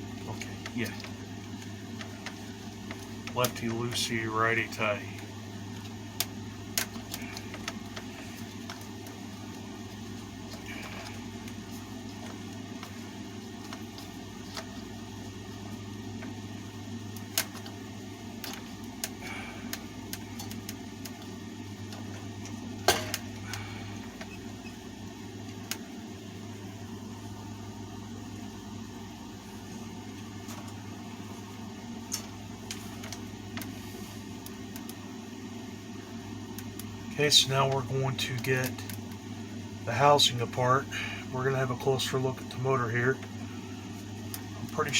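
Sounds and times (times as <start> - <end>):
low mechanical hum: 0.0 - 44.9
clicks of fan parts handled: 5.2 - 9.6, 17.1 - 17.8, 18.4 - 24.4, 32.1 - 33.7.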